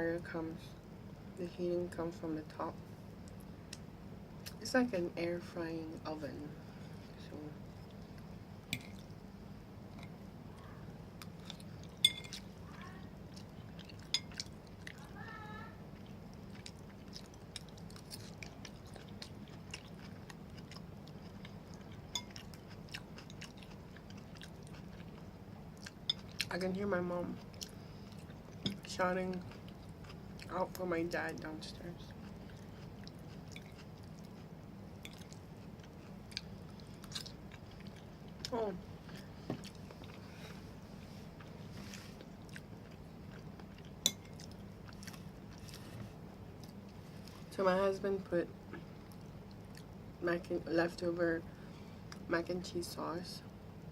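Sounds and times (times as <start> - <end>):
steady low hum: 0.0 - 53.9
person chewing food: 7.8 - 9.2, 11.1 - 15.1, 16.0 - 26.6, 27.3 - 30.5, 32.0 - 47.4, 48.8 - 50.0.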